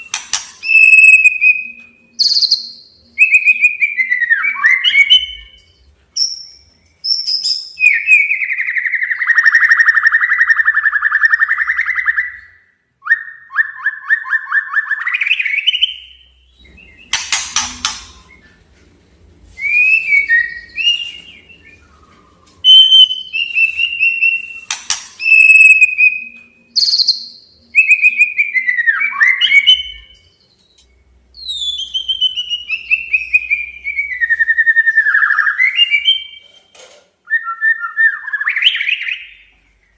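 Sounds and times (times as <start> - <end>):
whistled bird notes: 0.0 - 18.6, 19.5 - 36.4
sharp bird clicks: 17.1 - 18.3, 24.6 - 25.8.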